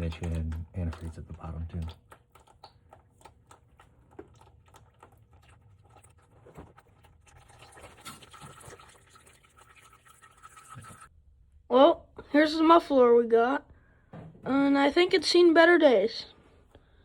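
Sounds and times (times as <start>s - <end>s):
faint irregular dripping: 0.0s - 11.1s.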